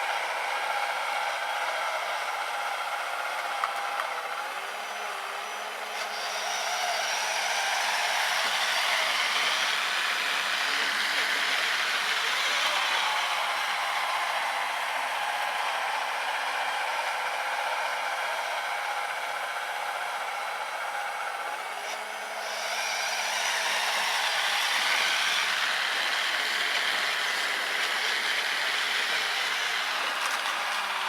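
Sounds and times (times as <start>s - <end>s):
electric motor whirring: 0.1s - 18.5s, 20.1s - 31.0s.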